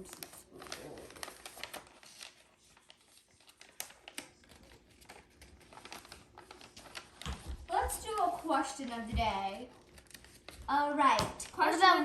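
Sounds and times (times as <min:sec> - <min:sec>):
paper crackles: 0:00.0 - 0:12.0
paper rustling and crinkling: 0:00.0 - 0:12.0.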